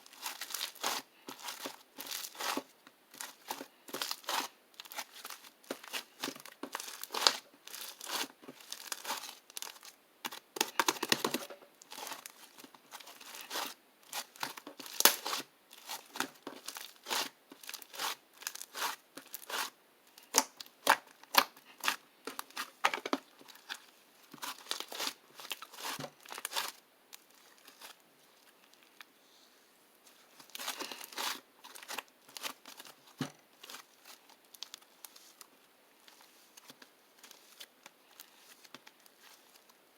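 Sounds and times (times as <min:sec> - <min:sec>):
crinkly sheet crumpled and torn: 0:00.0 - 0:10.0, 0:30.1 - 0:39.8.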